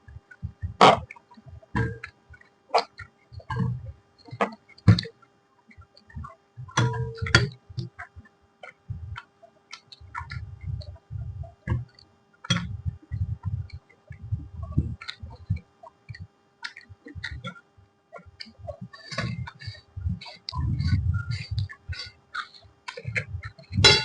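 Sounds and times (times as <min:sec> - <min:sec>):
person chewing food: 0:18.2 - 0:24.0.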